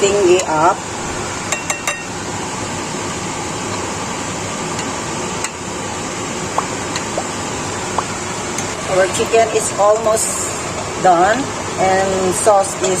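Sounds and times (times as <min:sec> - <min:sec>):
sauce bubbling in a pan: 0:06.1 - 0:08.8.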